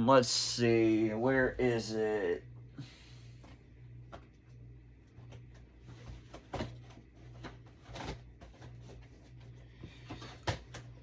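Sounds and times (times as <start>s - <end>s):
low electrical hum: 0.0s - 11.0s
plastic cases knocking and rustling: 5.2s - 11.0s.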